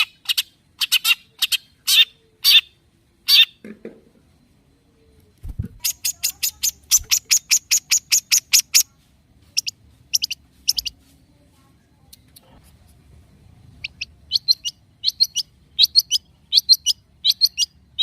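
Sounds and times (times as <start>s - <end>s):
shrike harsh calls and chattering: 0.0s - 3.6s, 5.5s - 8.9s, 9.5s - 11.0s, 13.8s - 18.0s.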